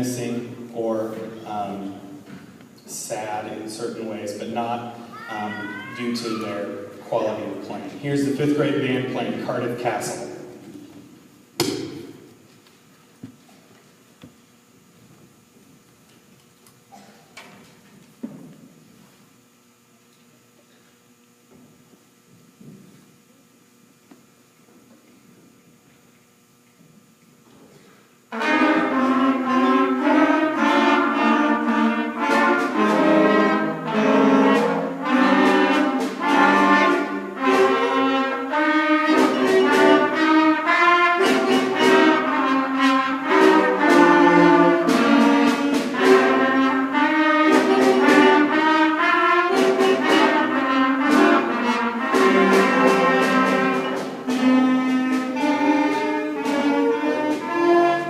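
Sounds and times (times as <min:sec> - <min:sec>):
concert band playing: 0:00.0 - 0:10.7, 0:28.3 - 0:58.0.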